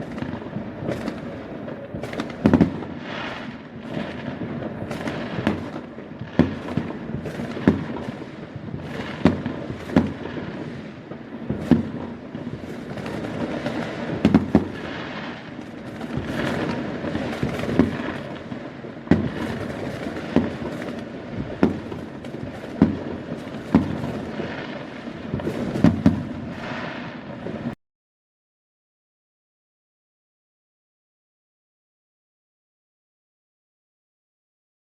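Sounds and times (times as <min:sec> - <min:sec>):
fireworks bangs: 0:00.0 - 0:27.8
fireworks crackling rumble: 0:00.0 - 0:27.8.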